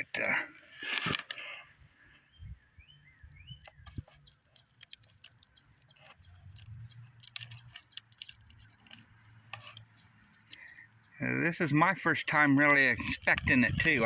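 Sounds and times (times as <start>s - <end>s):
faint bird chirps: 2.0s - 8.9s, 9.8s - 11.3s.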